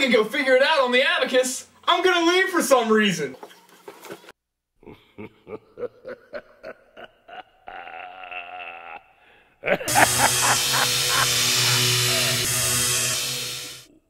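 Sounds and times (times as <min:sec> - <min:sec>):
person laughing: 0:04.8 - 0:12.4
loud music: 0:09.9 - 0:13.9.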